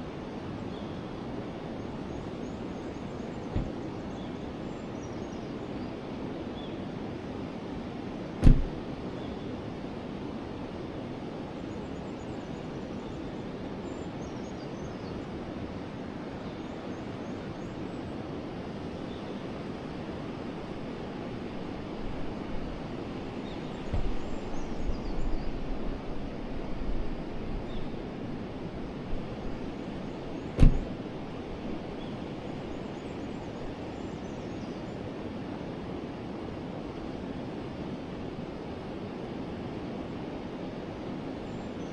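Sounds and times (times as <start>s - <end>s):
sharp knock: 8.4s - 8.8s, 30.6s - 30.9s
uneven low rumbling: 8.4s - 8.9s.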